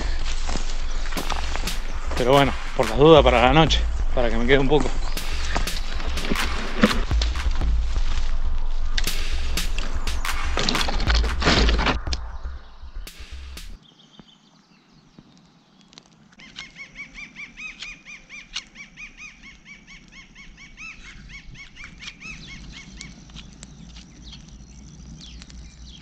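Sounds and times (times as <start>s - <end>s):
bird calling repeated notes: 0.0s - 7.8s, 8.9s - 14.4s, 16.4s - 24.6s
sharp clicks: 1.0s - 3.4s, 5.0s - 7.6s.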